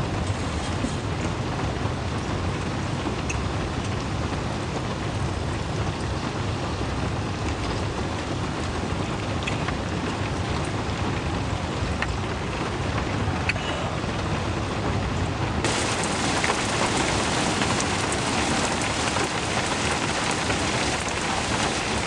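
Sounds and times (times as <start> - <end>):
heavy rain hiss: 15.5 - 22.0.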